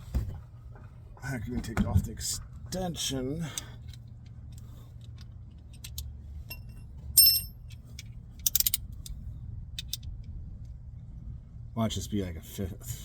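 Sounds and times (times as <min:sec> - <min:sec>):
steady low hum: 0:00.3 - 0:13.0
ringing metallic clink: 0:06.5 - 0:07.6.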